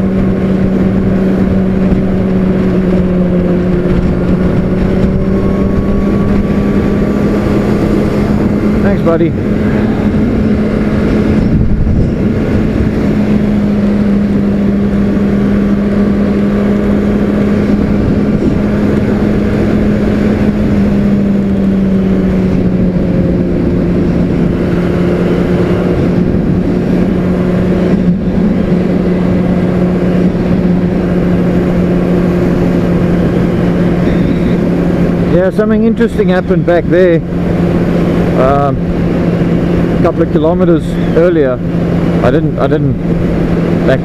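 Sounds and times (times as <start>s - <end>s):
motorcycle engine cruising: 0.0s - 44.0s
steady rushing noise: 0.0s - 44.0s.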